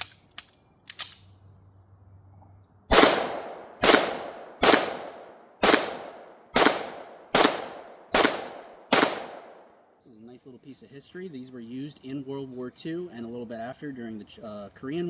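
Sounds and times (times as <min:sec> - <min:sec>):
small sharp clicks: 0:00.0 - 0:01.3
pistol shots echoing: 0:02.9 - 0:09.7.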